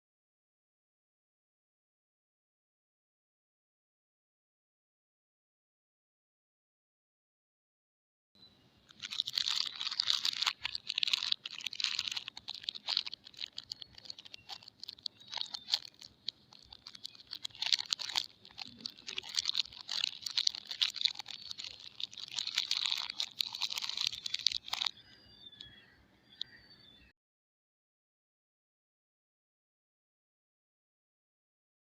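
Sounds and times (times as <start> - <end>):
soap wrapper crinkling: 8.9 - 25.0.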